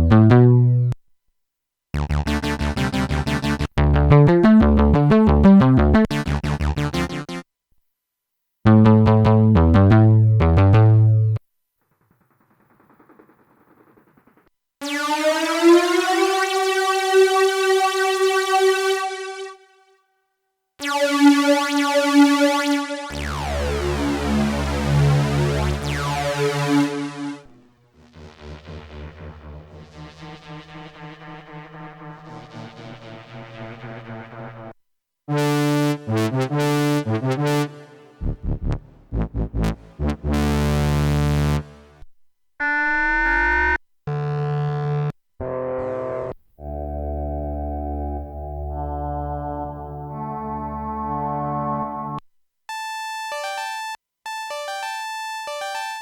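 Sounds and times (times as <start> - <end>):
deep synthesizer chord with bass: 0.0 - 1.0, 2.0 - 7.4, 8.7 - 11.4, 20.8 - 34.7, 35.3 - 42.0, 43.2 - 52.2
sweeping falling synth sound: 14.8 - 19.5, 20.8 - 33.2
synthesizer held notes: 20.8 - 34.4, 35.4 - 42.0, 47.0 - 56.0.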